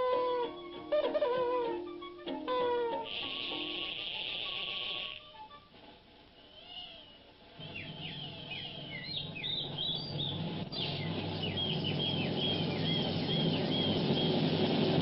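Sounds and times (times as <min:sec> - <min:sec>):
short falling bird whistles: 0:06.4 - 0:10.1
bird chirps: 0:06.4 - 0:14.8
low steady drone: 0:07.5 - 0:15.0.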